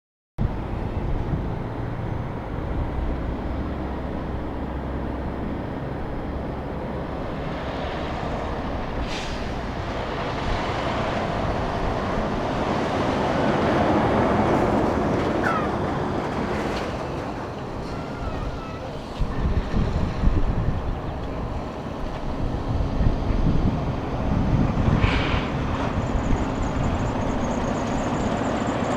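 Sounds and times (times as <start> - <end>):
wind on microphone: 0.4 - 4.6, 17.7 - 28.4
semi truck driving past: 0.4 - 28.9.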